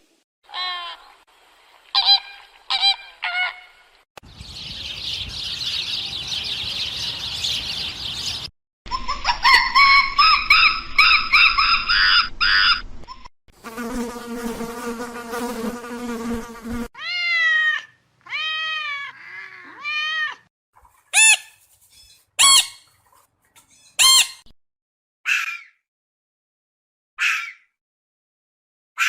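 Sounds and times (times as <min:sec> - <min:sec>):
long squealing calls: 0:21.1 - 0:22.9, 0:23.6 - 0:24.4.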